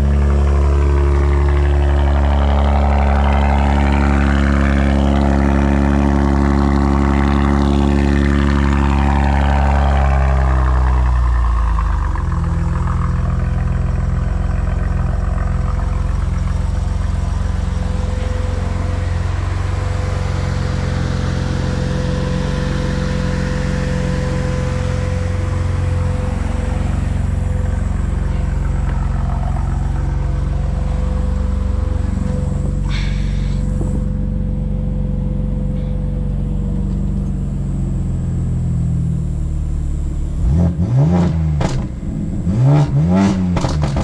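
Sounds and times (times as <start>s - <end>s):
car exhaust note: 0.0s - 44.0s.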